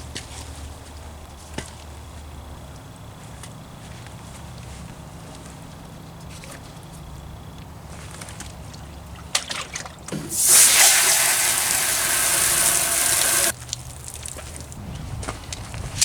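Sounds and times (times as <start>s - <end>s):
water gushing hard: 10.3s - 13.6s.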